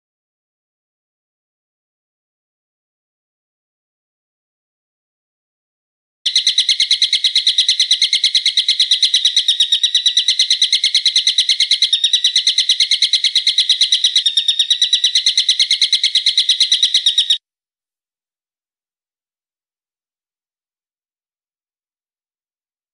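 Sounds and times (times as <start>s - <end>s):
bird trilling: 6.3s - 17.4s.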